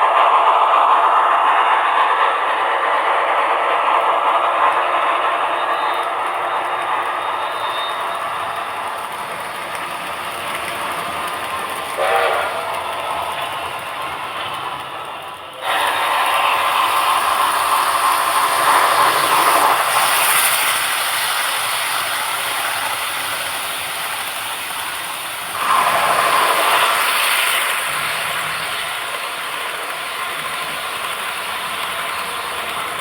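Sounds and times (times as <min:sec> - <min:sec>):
model train running: 0:00.0 - 0:33.0.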